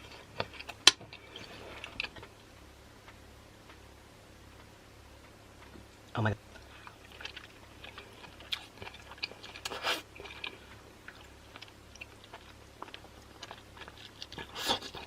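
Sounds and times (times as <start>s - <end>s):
wet chewing clicks and smacks: 6.5s - 15.0s.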